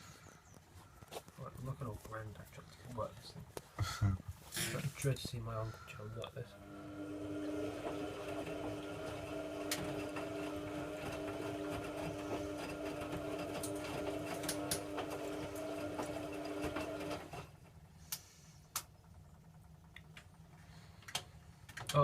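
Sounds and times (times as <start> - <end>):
washing machine motor whine: 6.4 - 20.9.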